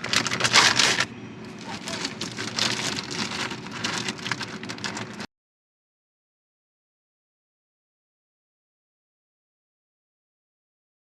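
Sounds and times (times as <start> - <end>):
plastic bags rustling and crackling: 0.0 - 5.3.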